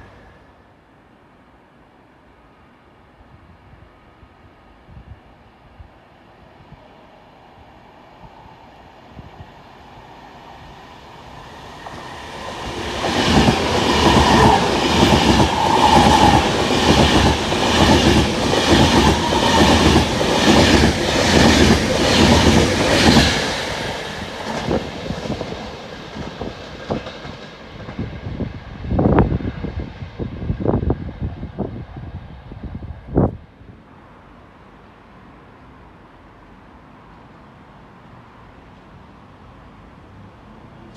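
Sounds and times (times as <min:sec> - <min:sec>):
low rushes: 0:07.9 - 0:33.4
train wheels clacking: 0:11.7 - 0:28.2.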